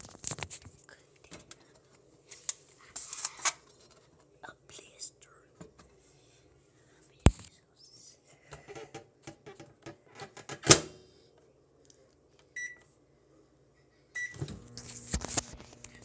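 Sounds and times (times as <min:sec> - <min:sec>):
high keypad beeps: 0:12.6 - 0:12.8
microwave oven humming: 0:14.2 - 0:16.0.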